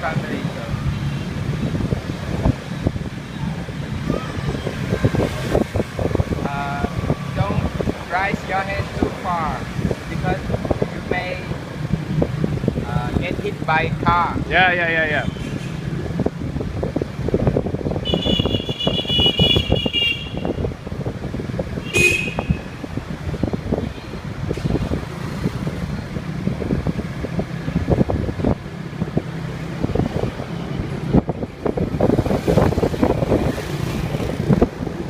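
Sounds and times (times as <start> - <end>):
traffic engines rumbling: 0.0 - 35.0
wind on microphone: 0.0 - 35.0
vehicle horn: 18.1 - 20.5, 21.8 - 22.6.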